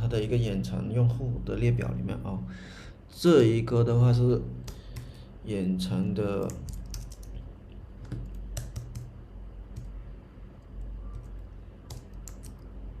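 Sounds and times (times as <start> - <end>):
low steady hum: 0.0 - 13.0
keyboard typing: 6.3 - 10.0, 10.6 - 12.7.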